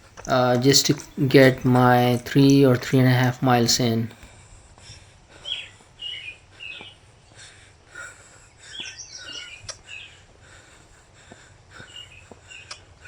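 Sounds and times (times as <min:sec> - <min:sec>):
songbirds chirping: 0:08.6 - 0:10.2.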